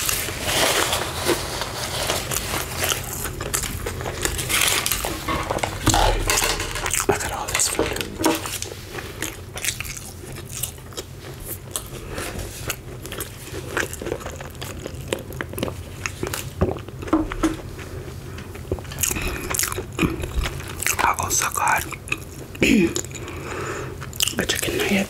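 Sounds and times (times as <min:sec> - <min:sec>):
crunchy chewing: 0:00.0 - 0:24.9.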